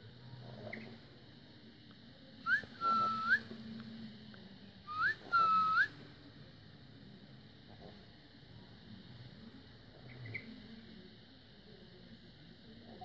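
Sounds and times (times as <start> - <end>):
parrot whistling: 2.5 - 3.4, 4.9 - 5.9.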